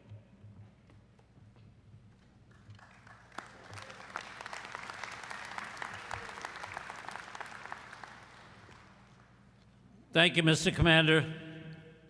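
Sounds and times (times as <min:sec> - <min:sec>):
audience applauding: 0:02.5 - 0:09.2.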